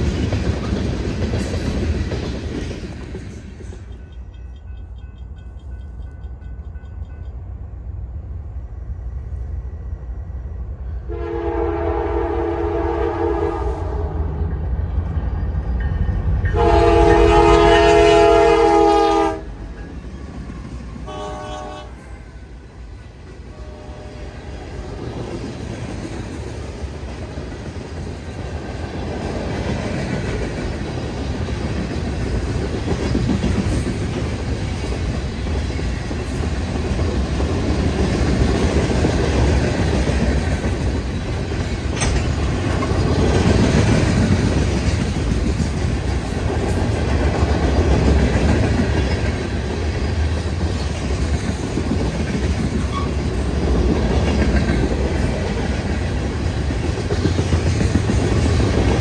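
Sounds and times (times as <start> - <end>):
train rumbling past: 0.0 - 59.0
train horn blasts: 11.0 - 14.5, 16.5 - 22.7, 23.4 - 25.0.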